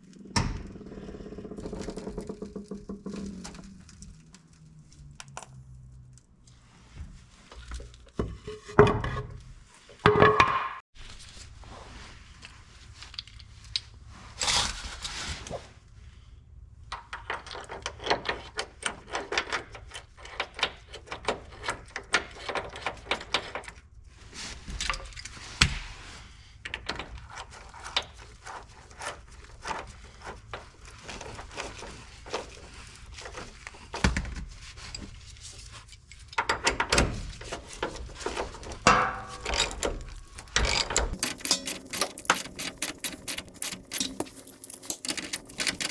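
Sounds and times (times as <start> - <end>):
metal clicks and clanks: 40.6 - 45.9.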